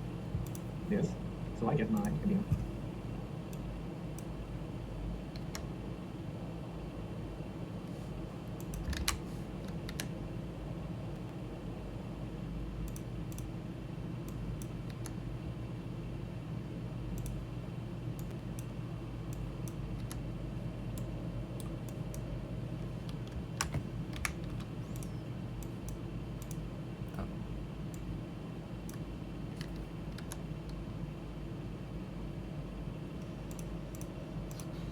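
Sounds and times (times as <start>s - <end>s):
steady low hum: 0.0s - 34.9s
keyboard and mouse clicking: 0.4s - 0.7s, 5.3s - 5.7s, 8.6s - 10.2s, 12.8s - 13.5s, 14.2s - 15.2s, 19.3s - 20.2s, 23.0s - 27.3s, 29.6s - 30.8s, 33.2s - 34.7s.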